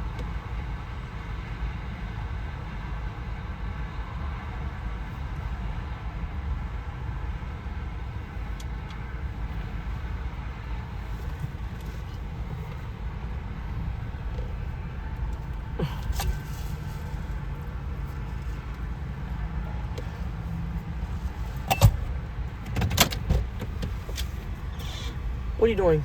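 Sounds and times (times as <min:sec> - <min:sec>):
vehicle rumble inside car: 0:00.0 - 0:26.0.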